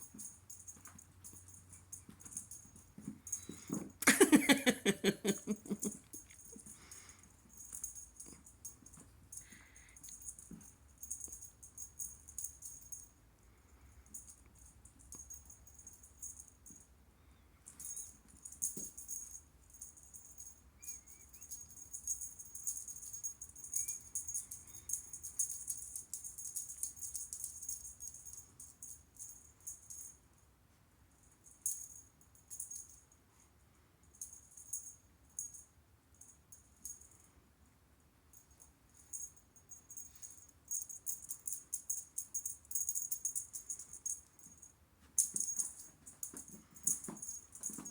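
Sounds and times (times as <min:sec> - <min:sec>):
jingle bell toy rattling: 0:17.7 - 0:30.2, 0:38.4 - 0:47.9.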